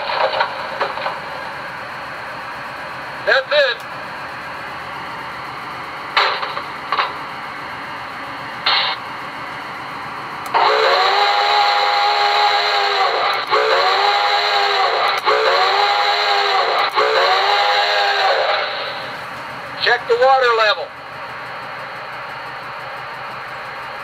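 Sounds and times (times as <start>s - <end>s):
chime steam whistle: 10.5s - 19.1s.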